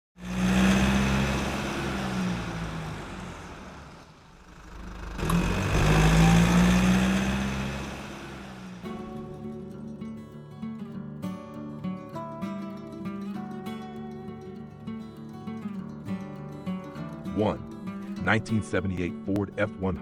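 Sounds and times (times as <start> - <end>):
car engine running: 0.2 - 9.4.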